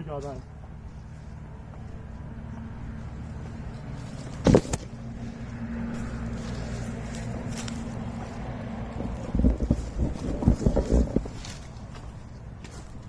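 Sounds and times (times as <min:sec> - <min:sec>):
distant vehicle engine hum: 0:00.0 - 0:13.0
loud short thump: 0:04.4 - 0:04.9.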